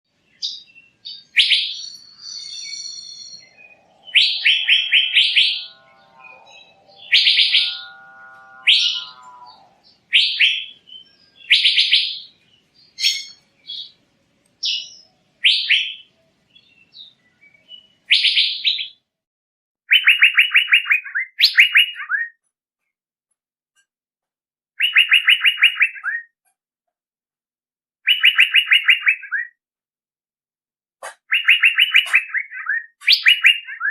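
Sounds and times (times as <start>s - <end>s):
bird calling high phrases: 0.4s - 14.0s, 14.6s - 19.0s, 19.9s - 22.3s, 24.8s - 26.3s, 28.1s - 29.6s, 31.1s - 33.9s
lower tuneful bird call: 0.4s - 14.0s.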